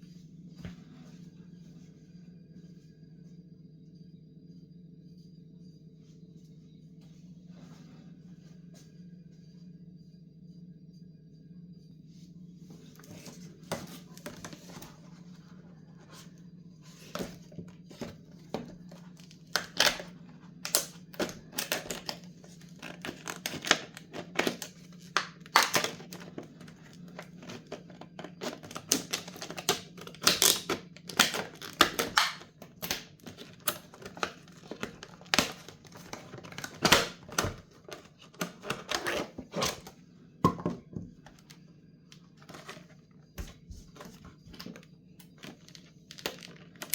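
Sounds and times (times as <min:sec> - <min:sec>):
steady low hum: 0:00.0 - 0:46.9
plastic parts clicking and rustling: 0:17.0 - 0:39.9, 0:42.4 - 0:46.9.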